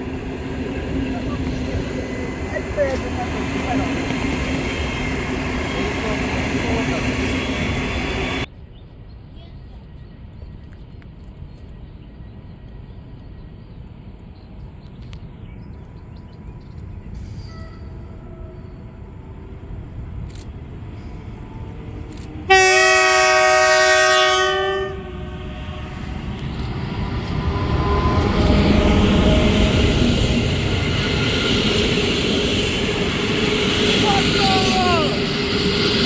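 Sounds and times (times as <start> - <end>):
train rumble: 0.0 - 36.0
train horn blast: 22.4 - 31.0.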